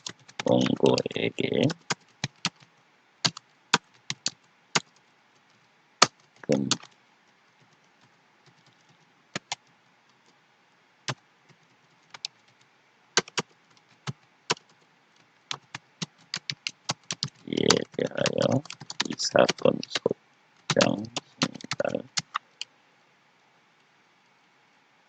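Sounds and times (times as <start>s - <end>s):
keyboard typing: 0.0s - 7.0s, 7.6s - 10.4s, 11.1s - 12.6s, 13.2s - 22.7s.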